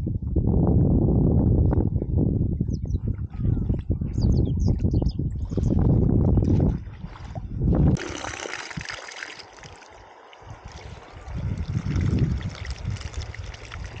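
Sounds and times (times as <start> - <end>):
low muffled rumbles: 0.0 - 8.0
river water flowing: 8.0 - 11.4.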